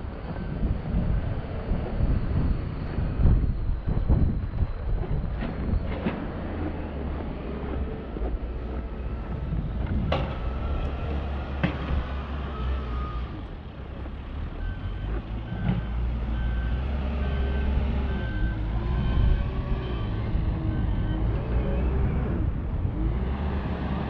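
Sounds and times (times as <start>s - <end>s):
truck engine rumbling: 0.0s - 24.0s
reversing alarm beeping: 6.4s - 22.6s.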